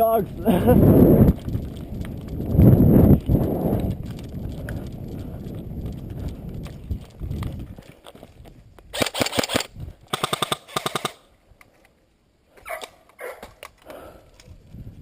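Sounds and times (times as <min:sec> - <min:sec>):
airsoft rifle rapid shots: 0:09.0 - 0:11.2.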